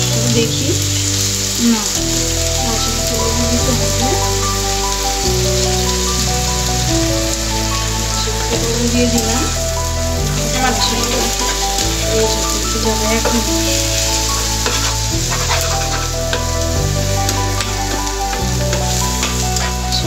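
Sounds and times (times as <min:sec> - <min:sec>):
background music with chords: 0:00.0 - 0:20.0
leaves sizzling in a pan: 0:00.0 - 0:20.0
spatula scraping a pan: 0:10.3 - 0:20.0.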